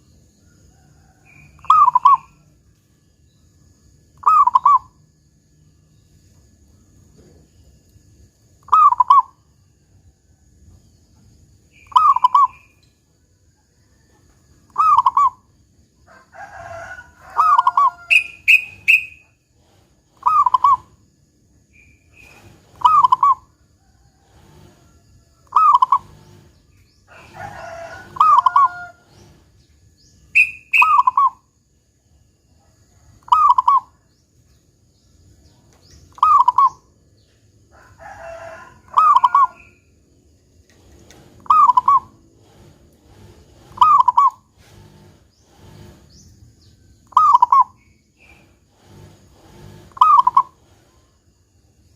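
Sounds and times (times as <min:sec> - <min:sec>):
dove cooing: 0:01.5 - 0:02.4, 0:04.2 - 0:04.9, 0:08.7 - 0:09.3, 0:11.8 - 0:12.7, 0:14.7 - 0:15.4, 0:16.5 - 0:21.0, 0:22.2 - 0:23.5, 0:25.5 - 0:29.5, 0:30.4 - 0:31.4, 0:33.3 - 0:33.9, 0:36.1 - 0:36.8, 0:38.2 - 0:39.8, 0:41.1 - 0:46.1, 0:47.1 - 0:50.9.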